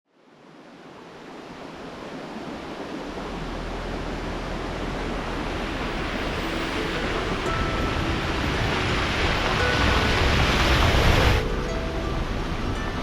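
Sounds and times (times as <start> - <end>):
steady rushing noise: 0.6 - 13.0
low hum: 3.0 - 13.0.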